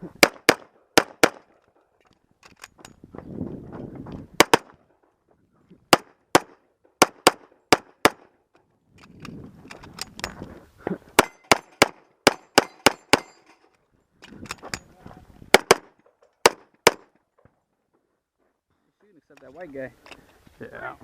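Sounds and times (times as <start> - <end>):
pistol shots: 0.2 - 1.5, 4.4 - 4.7, 5.9 - 8.3, 11.2 - 13.4, 15.5 - 17.1.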